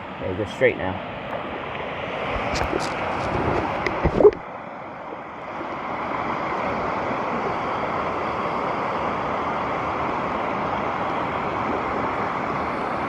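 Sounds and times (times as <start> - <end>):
waterfall rushing: 5.8 - 13.0.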